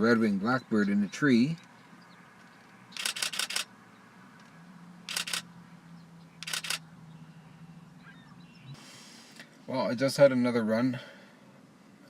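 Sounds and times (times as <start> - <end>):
camera shutter rapid clicks: 3.0 - 3.7, 5.1 - 5.4, 6.4 - 6.8.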